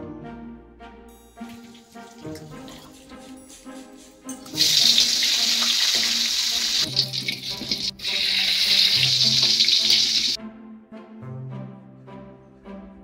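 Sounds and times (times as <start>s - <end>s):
soft background music: 0.0s - 13.0s
shallots sizzling in hot oil: 4.3s - 10.4s.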